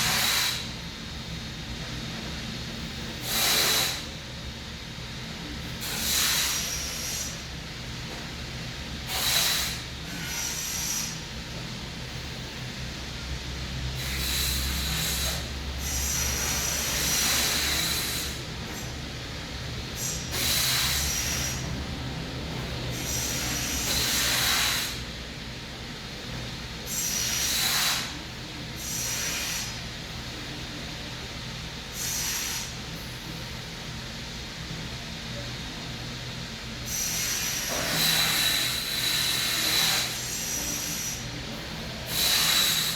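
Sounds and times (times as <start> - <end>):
steady low hum: 0.0 - 42.9
breathing through the nose: 5.8 - 7.4.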